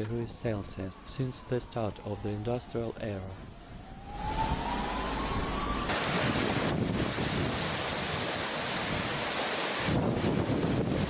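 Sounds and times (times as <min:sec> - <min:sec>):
wind buffeting microphone: 0:03.4 - 0:11.0
floodwater rushing: 0:05.9 - 0:11.0.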